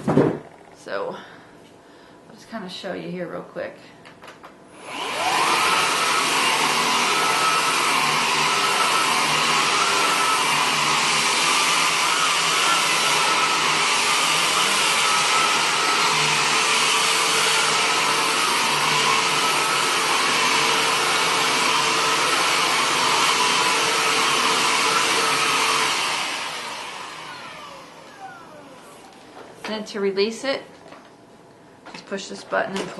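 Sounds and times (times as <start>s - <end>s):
vacuum cleaner running: 4.7s - 30.6s.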